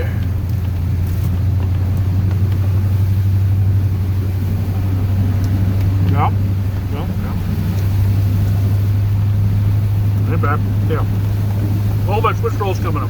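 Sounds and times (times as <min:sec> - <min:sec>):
truck engine drone: 0:00.0 - 0:13.0.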